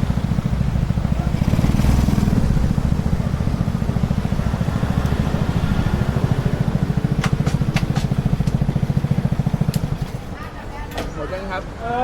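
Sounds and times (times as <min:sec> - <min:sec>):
small engine idling: 0:02.7 - 0:10.2.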